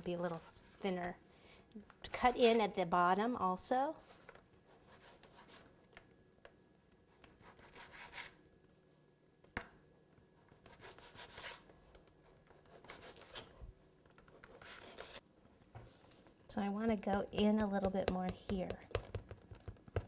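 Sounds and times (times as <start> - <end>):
knife scraping sponge cake: 10.6 - 11.7, 12.6 - 13.6.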